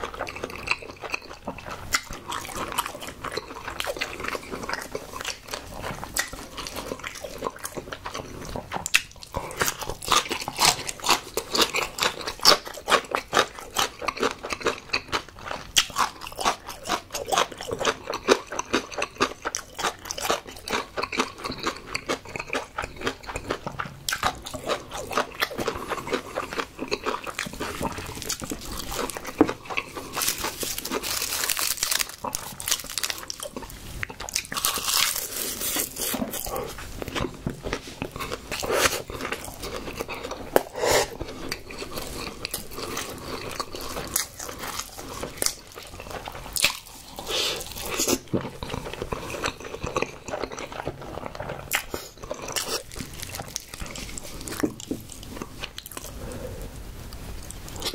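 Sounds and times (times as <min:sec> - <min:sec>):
person chewing food: 0:00.0 - 0:57.9
crisp rustling: 0:28.4 - 0:34.0.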